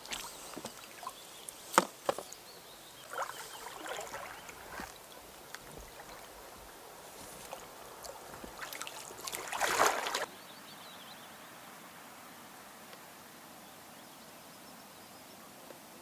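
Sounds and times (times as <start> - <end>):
paddle splash: 0.0 - 10.3
water sloshing and trickling: 0.0 - 10.3
small drips and knocks: 3.1 - 10.3.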